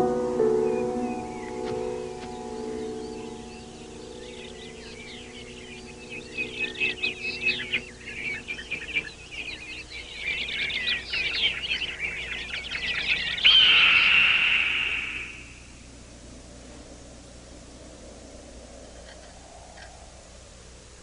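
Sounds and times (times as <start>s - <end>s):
birds chirping: 0.0s - 21.0s
loud high whistle-like tone: 13.5s - 15.7s.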